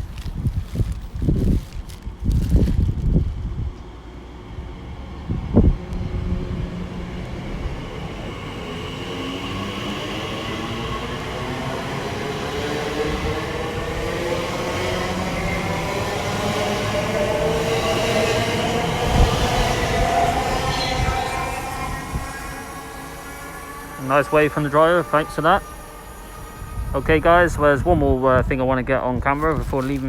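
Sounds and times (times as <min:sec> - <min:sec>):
electric train motors whining: 0:07.6 - 0:27.7.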